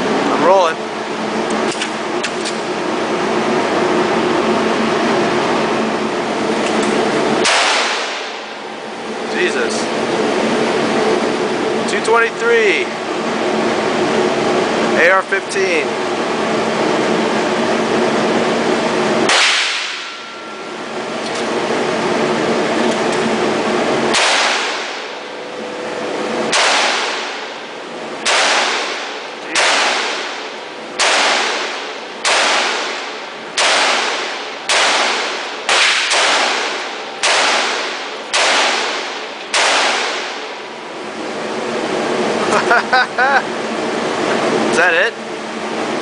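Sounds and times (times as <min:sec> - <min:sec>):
rifle shots: 0:07.4 - 0:08.4, 0:19.3 - 0:20.2, 0:24.1 - 0:25.1, 0:26.5 - 0:27.5, 0:28.2 - 0:40.6.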